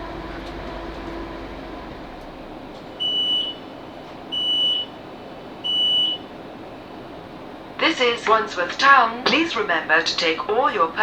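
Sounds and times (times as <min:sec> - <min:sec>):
rumble inside train carriage: 0:00.0 - 0:11.0
train door warning beeps: 0:03.0 - 0:05.0, 0:05.6 - 0:06.3.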